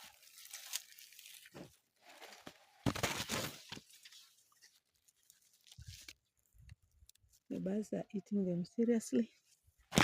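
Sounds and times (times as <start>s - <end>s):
dry leaves rustling and crunching: 0.0s - 6.6s.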